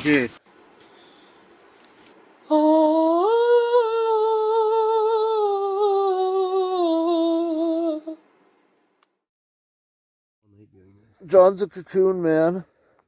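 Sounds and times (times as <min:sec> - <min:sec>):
person singing long note: 0:02.4 - 0:08.2.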